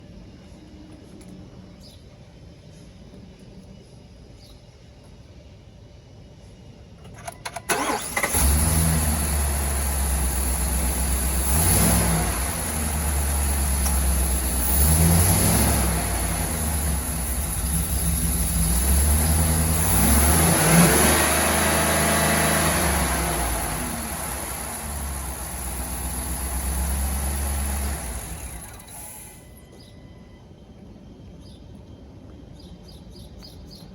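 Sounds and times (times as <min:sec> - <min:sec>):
starter cranking engine: 0:07.1 - 0:29.5
pickup engine idling and revving: 0:07.7 - 0:29.5.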